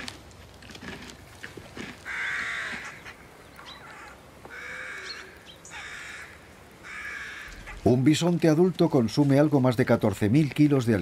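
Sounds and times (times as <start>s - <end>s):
crow-like bird cawing: 2.0s - 7.9s.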